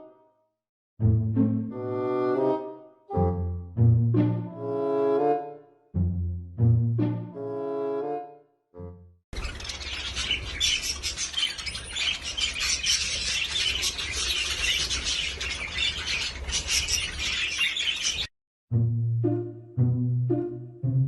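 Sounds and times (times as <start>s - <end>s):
parrots chattering and squawking: 9.4s - 18.3s.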